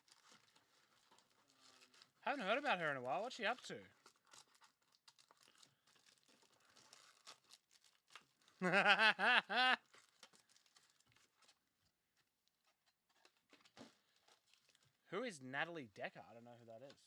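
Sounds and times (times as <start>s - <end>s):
foil wrappers crinkling and tearing: 0.0s - 8.8s, 9.8s - 15.0s
short pitched vocal sound: 8.6s - 9.8s.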